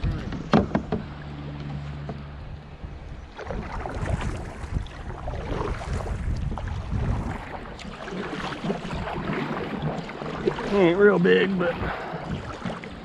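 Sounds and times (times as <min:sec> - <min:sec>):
river water rushing and splashing: 0:00.0 - 0:13.0
knocks on kayak: 0:00.1 - 0:01.1.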